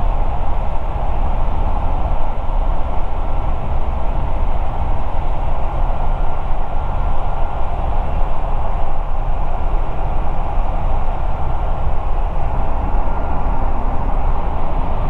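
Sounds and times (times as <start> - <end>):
aircraft engine and propeller drone: 0.0 - 15.0
airflow noise: 10.6 - 15.0.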